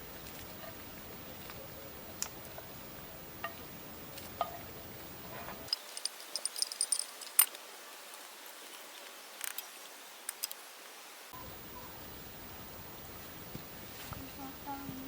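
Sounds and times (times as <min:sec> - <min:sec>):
high-pitched clinks: 0:05.7 - 0:07.5.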